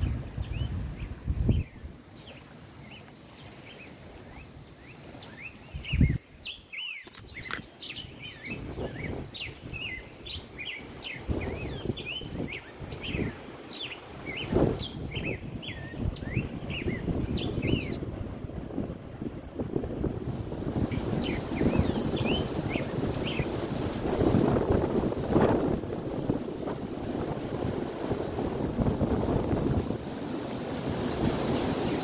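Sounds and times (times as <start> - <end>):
wind buffeting microphone: 0.0 - 2.4, 4.0 - 32.0
small birds chirping: 0.0 - 18.0, 20.8 - 23.6.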